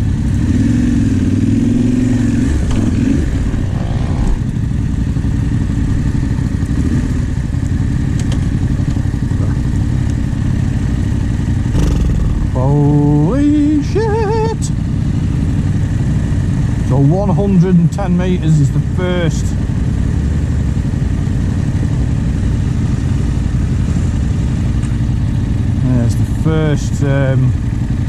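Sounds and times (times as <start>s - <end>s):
motorcycle engines running: 0.0s - 28.0s
man exclaiming: 12.4s - 14.8s, 25.8s - 27.6s.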